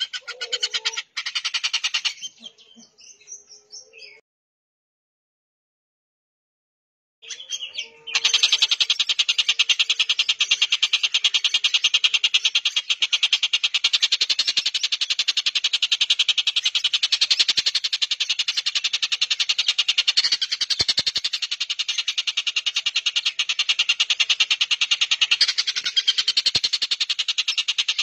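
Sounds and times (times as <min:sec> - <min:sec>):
bird chattering rattle: 0:00.0 - 0:02.3, 0:08.2 - 0:28.0.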